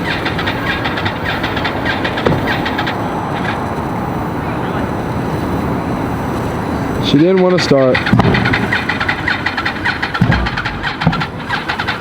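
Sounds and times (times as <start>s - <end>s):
dull thumps: 0.0s - 3.6s, 7.5s - 12.0s
motorcycle engine cranking: 0.0s - 3.7s, 7.1s - 12.0s.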